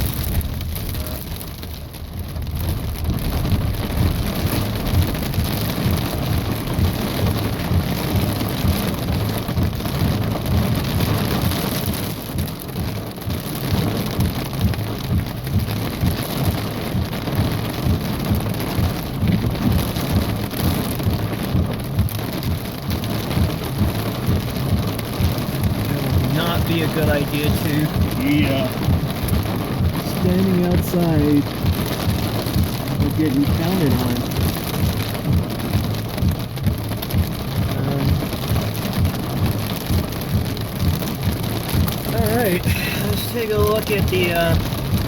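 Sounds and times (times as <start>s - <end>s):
rain and hail drumming on car roof: 0.0s - 45.0s.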